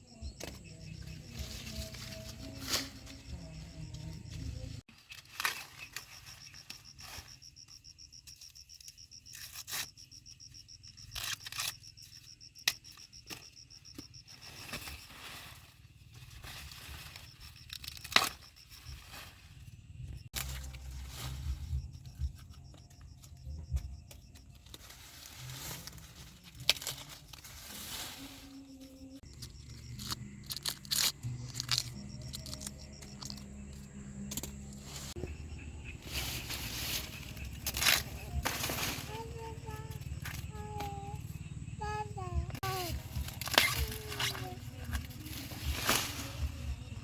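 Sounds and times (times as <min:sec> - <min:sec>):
high insect trill: 0:05.4 - 0:47.0
rustling and crackling: 0:13.9 - 0:35.3, 0:36.0 - 0:41.3.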